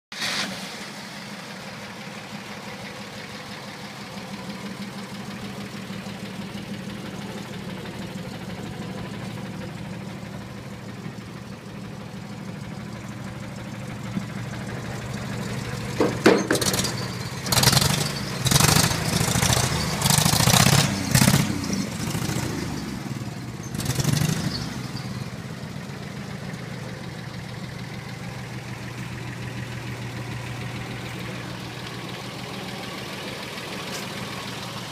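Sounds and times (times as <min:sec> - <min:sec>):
truck engine idling: 0:00.7 - 0:34.9.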